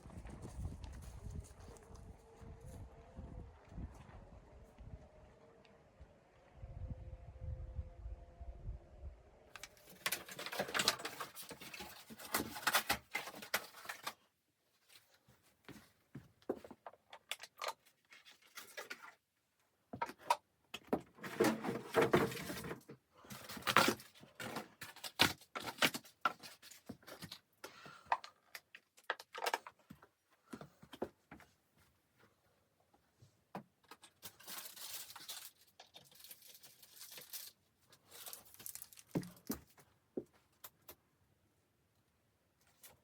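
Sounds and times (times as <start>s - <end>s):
objects clicking and clacking: 9.6s - 14.2s.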